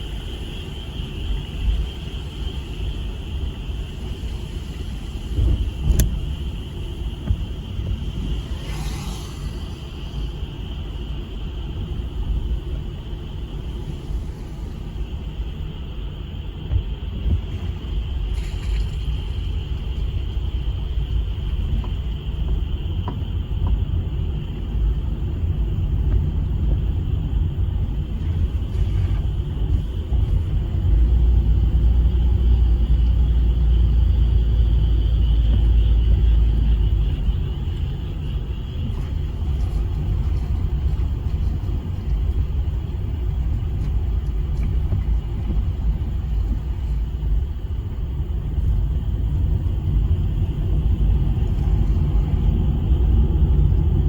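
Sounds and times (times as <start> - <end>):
low rumble: 3.0 - 54.0
brief hiss: 8.4 - 10.2.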